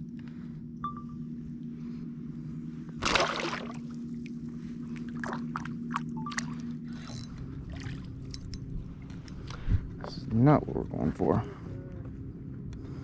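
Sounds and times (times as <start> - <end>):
steady low hum: 0.0 - 13.0
water splashing around kayak: 3.0 - 4.0.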